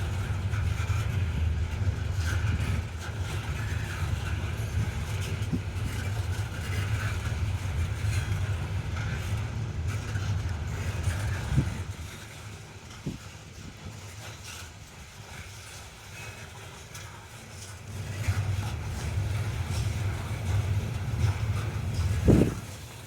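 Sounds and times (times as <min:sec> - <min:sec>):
train rolling past rumbling: 0:00.0 - 0:23.0.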